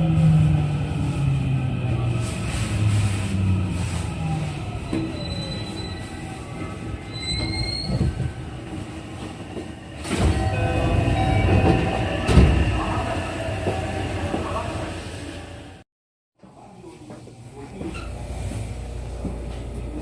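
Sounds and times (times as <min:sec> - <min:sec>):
train rumble: 0:00.0 - 0:15.8
train traction motor whine: 0:04.6 - 0:15.8
high thin wheel squeal: 0:07.0 - 0:08.2.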